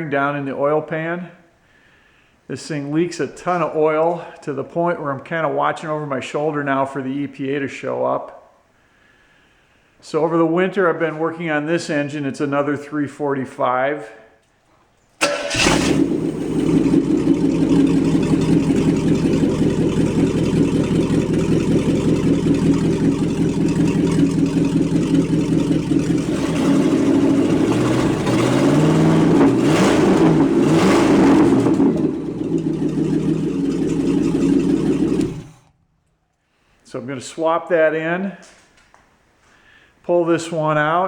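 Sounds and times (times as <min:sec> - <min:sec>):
pickup engine starting and revving: 0:15.2 - 0:35.8.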